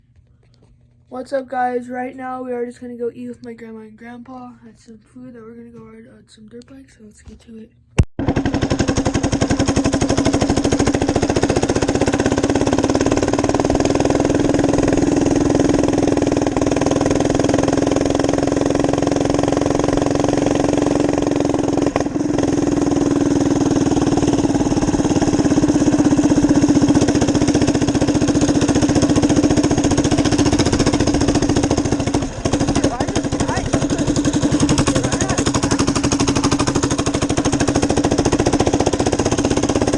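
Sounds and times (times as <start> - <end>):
minibike engine running: 8.2 - 39.9.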